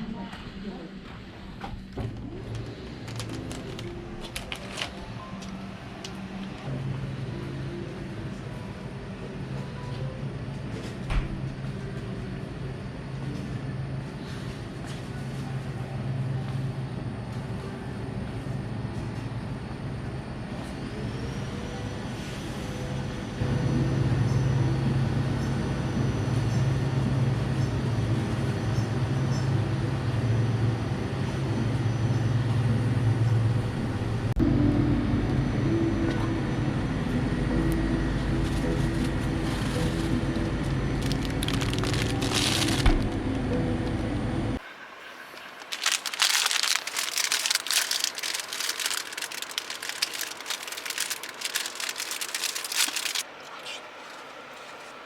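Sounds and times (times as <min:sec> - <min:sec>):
van engine drone: 0:15.8 - 0:44.6
road noise: 0:32.9 - 0:55.0.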